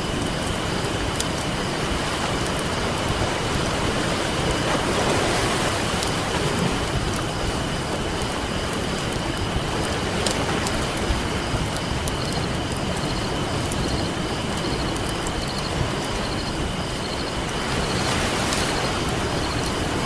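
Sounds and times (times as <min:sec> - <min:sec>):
campfire crackling and popping: 0:00.0 - 0:04.9, 0:05.6 - 0:20.0
ocean surf hissing: 0:00.0 - 0:20.0.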